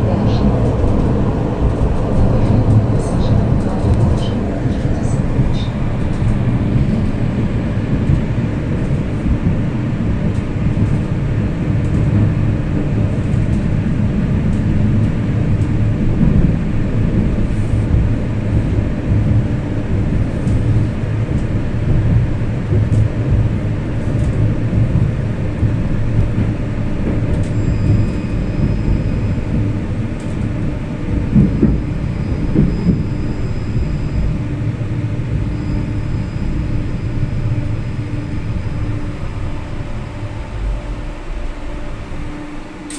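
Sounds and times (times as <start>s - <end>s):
tram wheels rumbling on rails: 0.0s - 42.9s.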